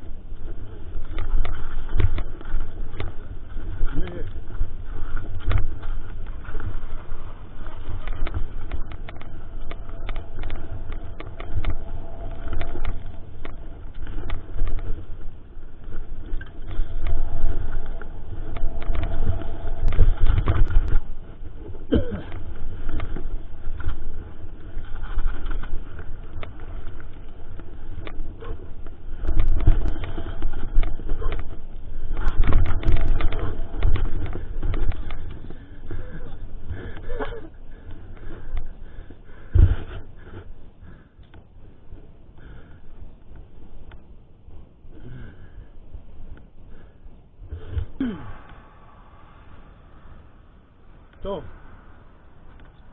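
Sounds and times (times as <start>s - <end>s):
bike clattering and rattling: 0.0s - 41.1s
wind rumble: 0.0s - 52.9s.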